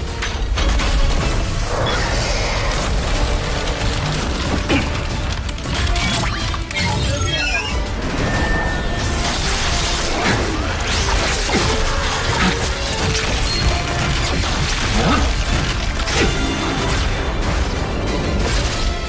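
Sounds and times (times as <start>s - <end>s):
soundtrack music: 0.0s - 19.0s.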